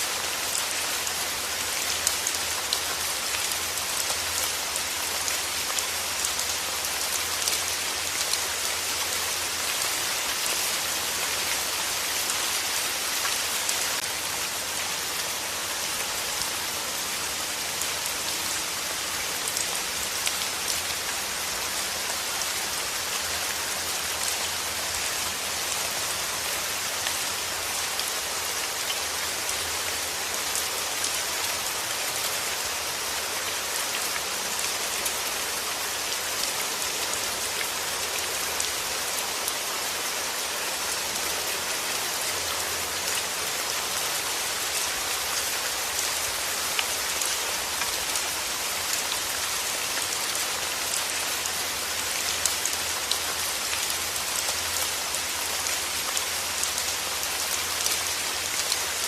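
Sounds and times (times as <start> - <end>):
rain on hard surface: 0.0 - 59.0.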